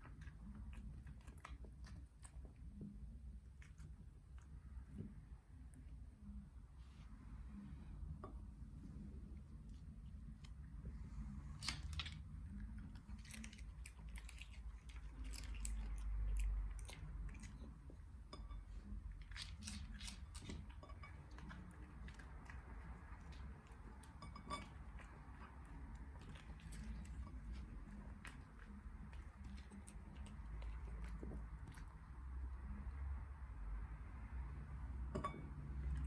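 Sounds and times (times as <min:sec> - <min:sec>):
dog chewing food: 0:11.6 - 0:18.5, 0:19.1 - 0:32.8.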